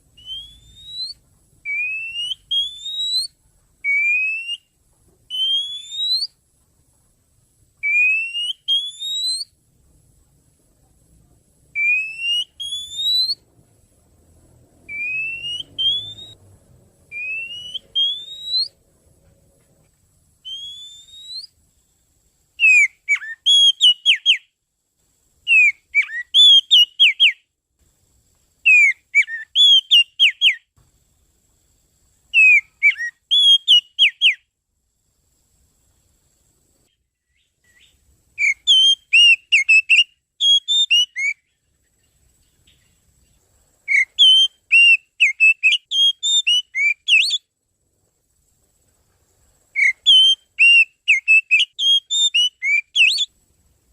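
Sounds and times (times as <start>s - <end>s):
bird whistled calls: 0.1s - 6.4s, 7.8s - 9.6s, 11.8s - 13.4s, 14.9s - 16.4s, 17.1s - 18.8s, 20.4s - 21.6s, 22.6s - 24.5s, 25.5s - 27.4s, 28.7s - 30.7s, 32.3s - 34.4s, 37.2s - 41.6s, 43.9s - 47.5s, 49.8s - 53.3s.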